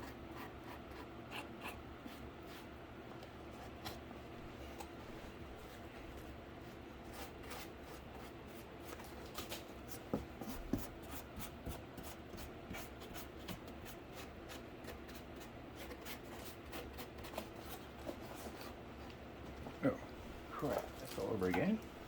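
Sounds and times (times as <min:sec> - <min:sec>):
scratchy paint strokes on cardboard: 0:00.0 - 0:02.8, 0:06.6 - 0:18.8
low room hum: 0:00.0 - 0:22.0.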